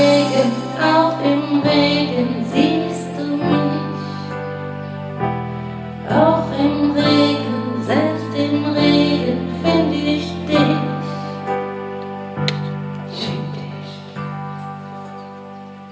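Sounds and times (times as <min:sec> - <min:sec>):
electronic keyboard playing chords: 0:00.0 - 0:15.9.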